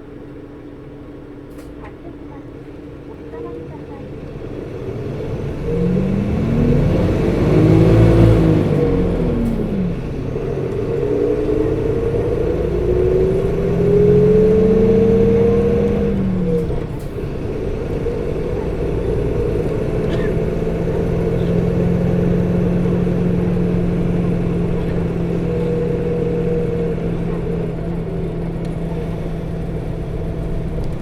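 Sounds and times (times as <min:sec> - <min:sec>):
bus diesel engine accelerating: 0:00.0 - 0:31.0.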